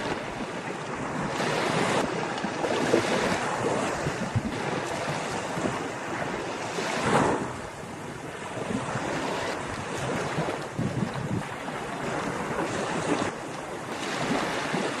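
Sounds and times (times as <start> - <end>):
ocean surf breaking: 0.0 - 15.0
wind rumbling on microphone: 0.0 - 15.0.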